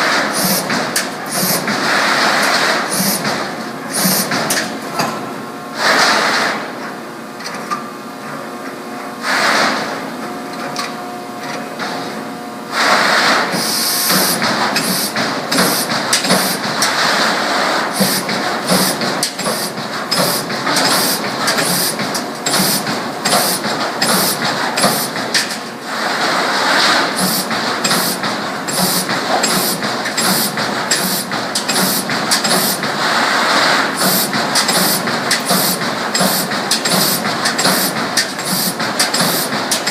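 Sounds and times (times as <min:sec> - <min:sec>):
machine humming: 0:00.0 - 0:05.6.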